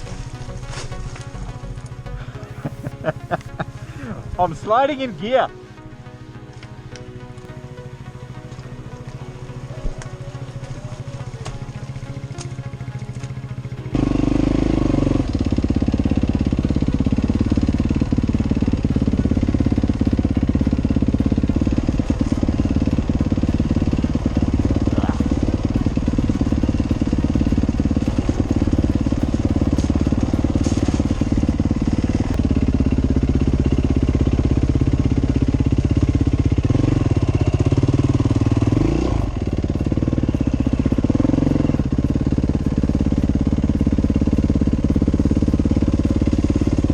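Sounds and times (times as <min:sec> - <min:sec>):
dirt bike engine revving: 0:12.9 - 0:46.9.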